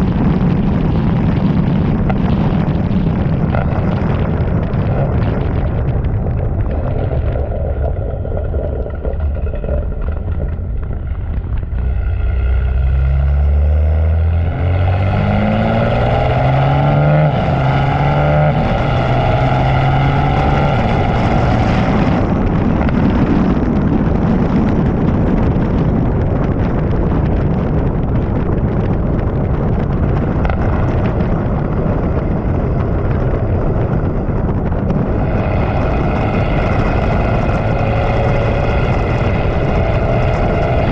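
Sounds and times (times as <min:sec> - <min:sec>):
wind and road noise: 0:00.0 - 0:40.9
car engine accelerating: 0:00.8 - 0:23.6, 0:34.8 - 0:40.9.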